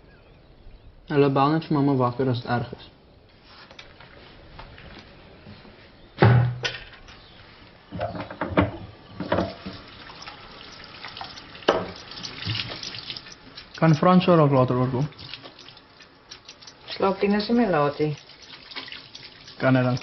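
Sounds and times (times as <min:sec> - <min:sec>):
tap running into sink: 0:08.0 - 0:13.7
knocks and clinks of handling: 0:09.2 - 0:14.2, 0:15.1 - 0:17.0.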